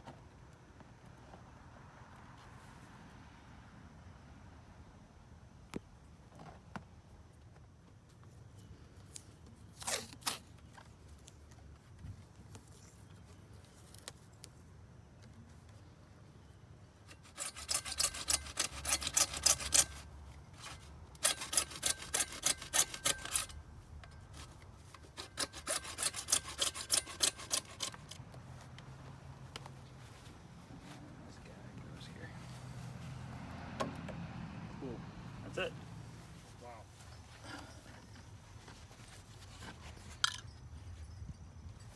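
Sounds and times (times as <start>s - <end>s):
hand tool stroking plastic pipe: 17.1s - 28.2s.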